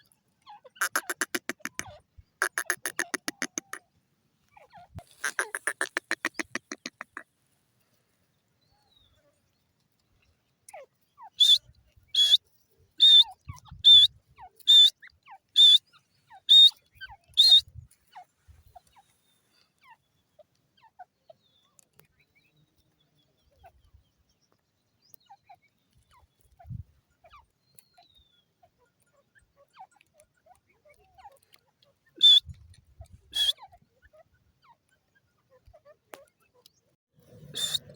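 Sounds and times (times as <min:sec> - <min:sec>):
francolin calling: 0:00.6 - 0:03.8, 0:05.0 - 0:07.2, 0:11.2 - 0:12.4, 0:13.0 - 0:17.6, 0:32.2 - 0:32.5, 0:33.3 - 0:33.8, 0:37.5 - 0:37.9.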